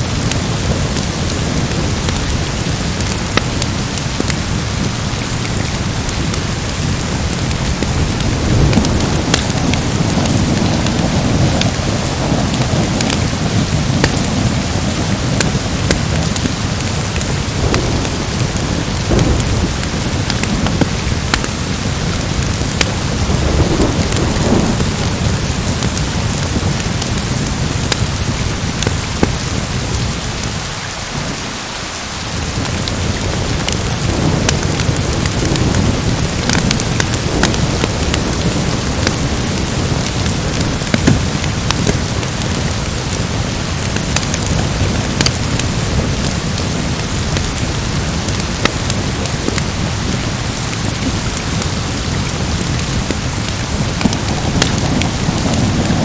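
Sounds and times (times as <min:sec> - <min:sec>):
low rolling thunder: 0:00.0 - 0:30.1, 0:32.4 - 0:56.0
wood fire crackling: 0:00.0 - 0:30.6, 0:32.5 - 0:56.0
heavy rain: 0:00.0 - 0:56.0.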